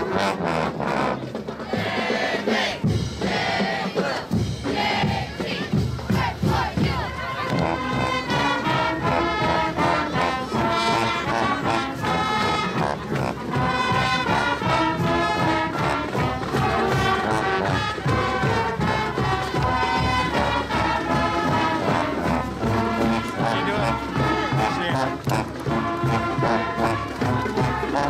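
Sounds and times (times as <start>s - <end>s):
brass melody in block chords: 0.0s - 1.4s, 7.4s - 28.0s
marching percussion: 0.0s - 28.0s.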